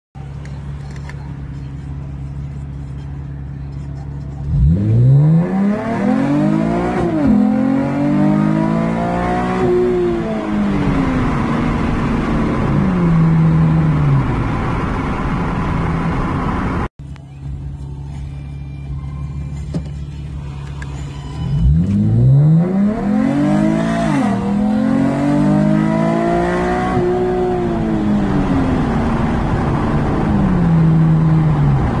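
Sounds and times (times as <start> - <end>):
car engine revving while accelerating: 4.3 - 16.9, 21.4 - 32.0.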